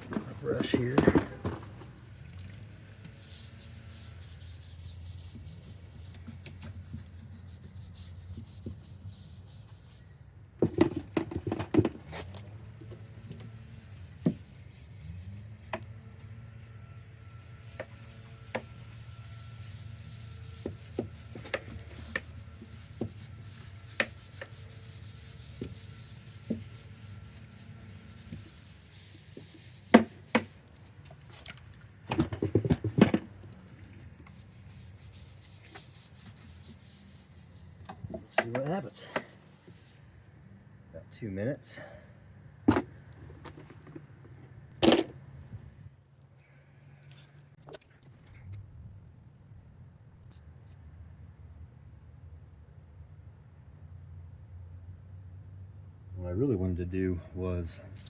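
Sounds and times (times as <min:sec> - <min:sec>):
brush scrubbing boat hull: 0:00.0 - 0:02.3, 0:03.1 - 0:10.1, 0:10.7 - 0:40.0.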